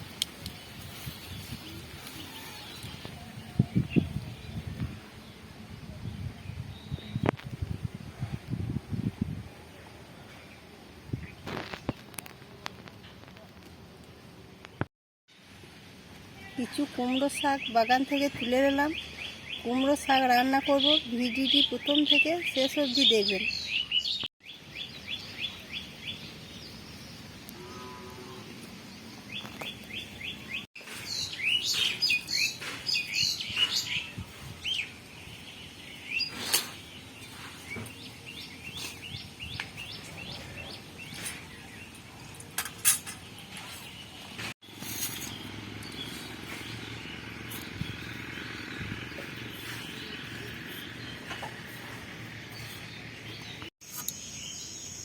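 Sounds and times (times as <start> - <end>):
small birds chirping: 16.4 - 27.6, 28.6 - 55.0.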